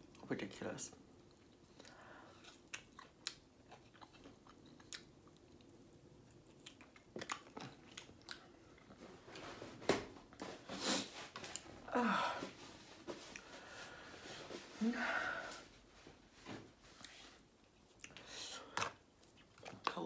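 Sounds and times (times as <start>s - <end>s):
person chewing with wet smacks: 1.2s - 9.0s, 16.9s - 20.0s.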